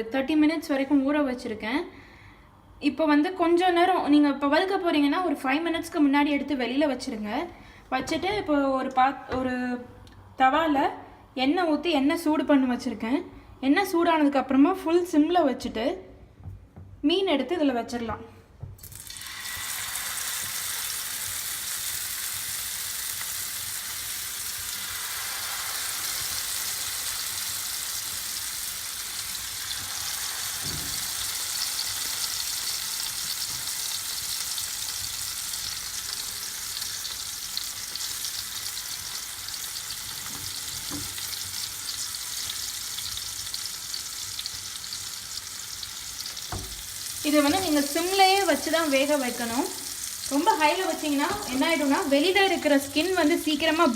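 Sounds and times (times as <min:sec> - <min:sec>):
fish sizzling in hot oil: 0:18.8 - 0:53.9.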